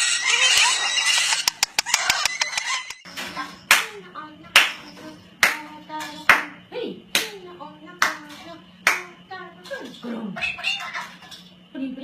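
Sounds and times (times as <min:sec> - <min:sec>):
parrot calls and chatter: 0:00.0 - 0:03.7, 0:09.7 - 0:11.6
hands clapping: 0:04.6 - 0:04.8, 0:05.4 - 0:05.6, 0:08.8 - 0:09.1.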